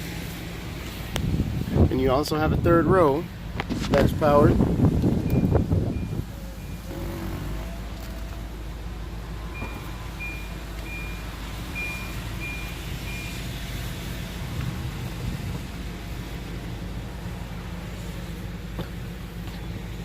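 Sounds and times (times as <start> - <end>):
steady low rumble: 0.0 - 20.0
warning chime beeping: 9.5 - 13.4.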